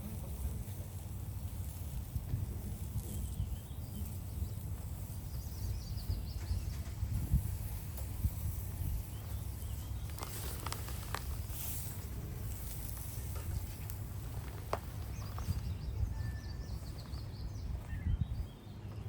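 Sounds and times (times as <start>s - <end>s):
faint bird chirps: 3.0s - 7.0s, 15.0s - 19.0s.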